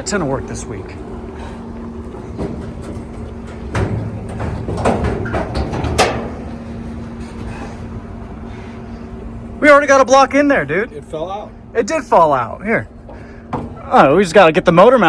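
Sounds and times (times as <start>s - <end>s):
steady low hum: 0.0s - 15.0s
sharp knocks and clatters: 2.3s - 6.7s.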